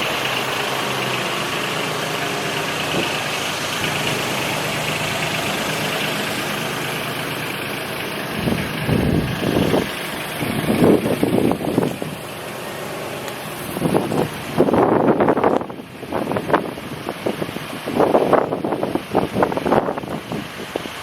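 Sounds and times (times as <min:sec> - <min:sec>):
truck engine idling: 0:00.0 - 0:21.0
wind buffeting microphone: 0:02.6 - 0:06.2, 0:08.2 - 0:12.3, 0:13.5 - 0:21.0.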